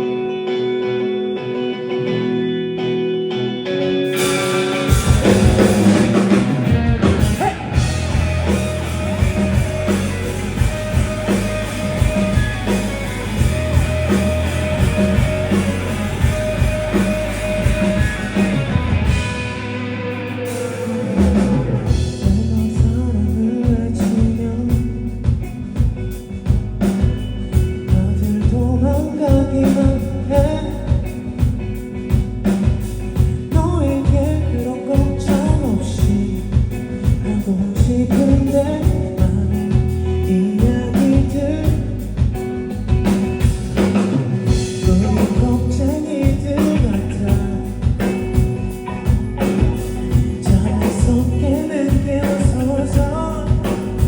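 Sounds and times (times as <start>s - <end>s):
rock band playing: 0.0s - 54.0s
lead vocal singing: 5.2s - 10.2s, 20.5s - 25.3s, 44.0s - 48.3s, 50.3s - 54.0s.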